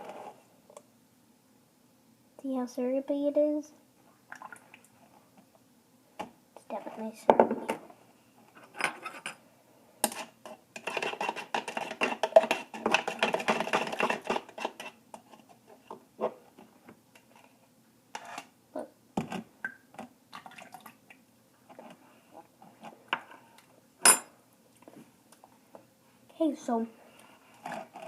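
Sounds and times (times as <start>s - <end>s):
utensil scraping a cup: 10.2s - 15.0s.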